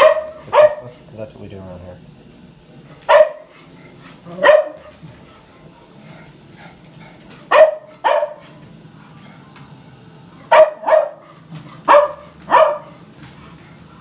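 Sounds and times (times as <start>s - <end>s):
dog barking: 0.0s - 1.0s, 3.0s - 3.5s, 4.3s - 4.9s, 7.5s - 8.6s, 10.5s - 13.0s.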